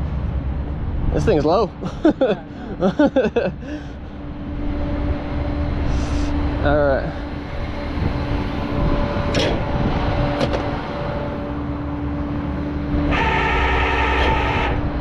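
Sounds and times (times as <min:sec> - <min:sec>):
mechanical whine: 0:04.2 - 0:15.0.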